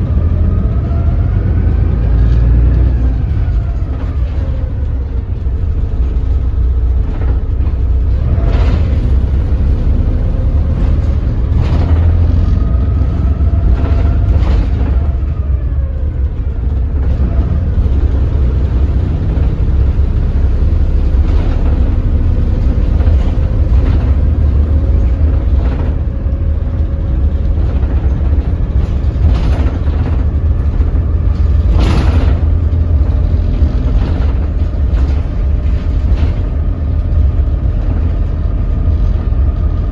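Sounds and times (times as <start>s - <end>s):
bus diesel engine rumble: 0.0s - 39.9s
knocks or rattles: 16.6s - 39.6s.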